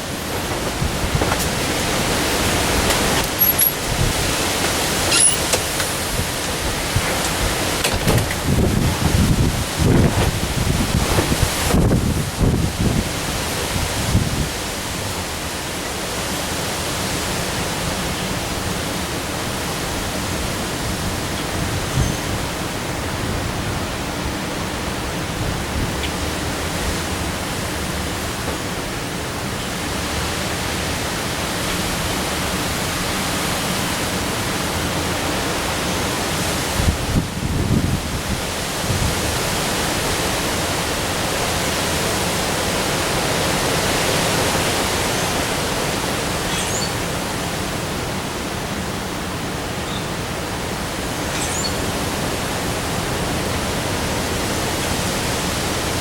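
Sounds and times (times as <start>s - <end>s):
wind buffeting microphone: 0.0s - 15.1s, 18.7s - 45.7s
heavy rain hissing: 0.0s - 56.0s.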